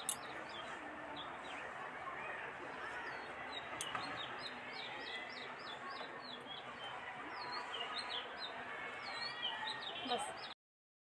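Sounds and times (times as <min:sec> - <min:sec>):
faint outdoor background noise: 0:00.0 - 0:10.6
small birds chirping: 0:00.0 - 0:10.6.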